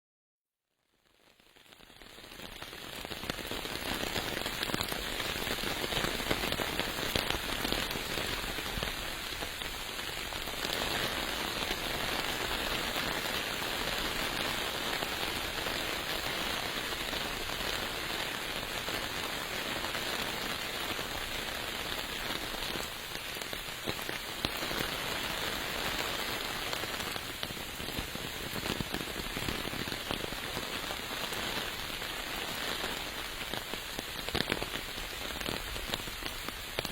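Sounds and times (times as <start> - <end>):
steady rain falling: 1.0 - 36.9.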